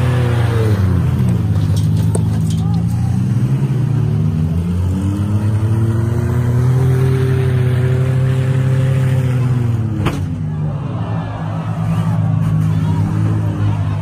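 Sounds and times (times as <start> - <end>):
car engines revving: 0.0 - 14.0
vehicle collision crash: 1.2 - 3.0.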